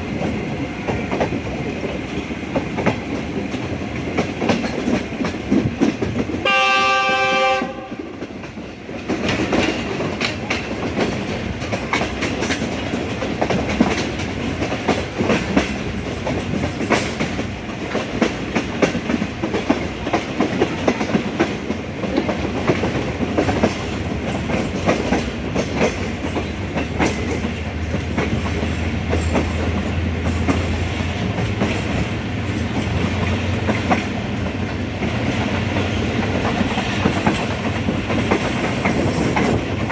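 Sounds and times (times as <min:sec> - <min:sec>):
train running rumble: 0:00.0 - 0:39.9
wheels clacking over rail joints: 0:00.0 - 0:39.9
train horn blast: 0:06.4 - 0:08.2.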